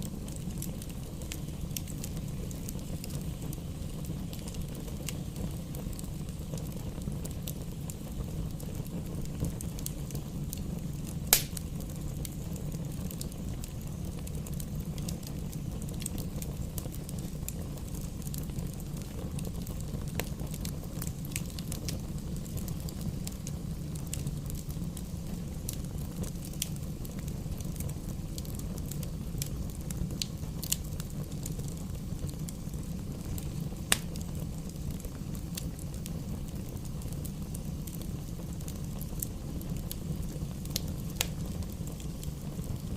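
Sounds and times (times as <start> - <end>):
burning logs crackling: 0.0 - 42.9
fire flames rumbling: 0.0 - 42.9
sharp fire pops: 11.0 - 13.3, 33.8 - 36.0.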